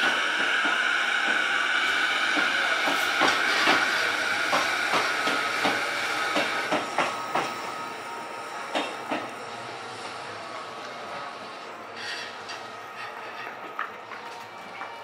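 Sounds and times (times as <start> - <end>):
train wheels clacking on rail joints: 2.3 - 7.7, 8.7 - 9.4, 12.0 - 15.0
train high hiss: 11.7 - 13.6.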